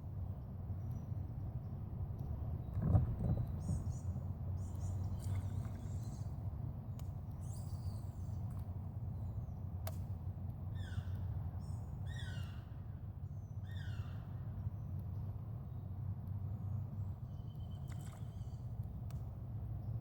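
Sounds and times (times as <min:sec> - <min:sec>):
low steady hum: 0:00.0 - 0:20.0
bird calling: 0:10.8 - 0:12.8, 0:13.6 - 0:14.4.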